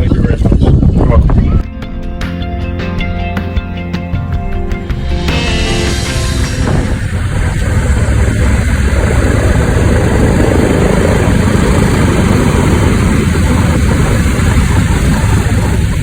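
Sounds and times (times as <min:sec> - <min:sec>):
aircraft engine running: 0:01.6 - 0:16.0.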